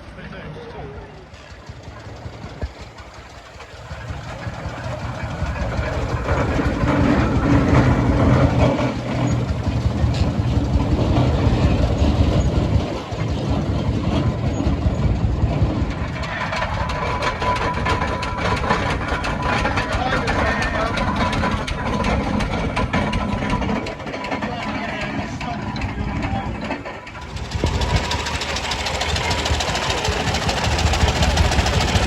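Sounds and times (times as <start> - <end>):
steam traction engines running: 0.0 - 32.0.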